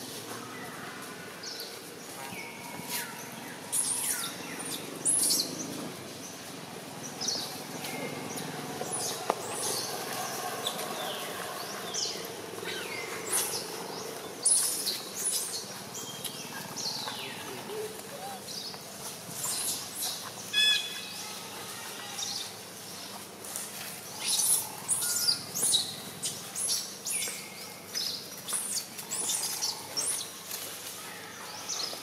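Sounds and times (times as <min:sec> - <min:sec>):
faint outdoor background: 0:00.0 - 0:32.0
birds chirping: 0:07.0 - 0:21.2.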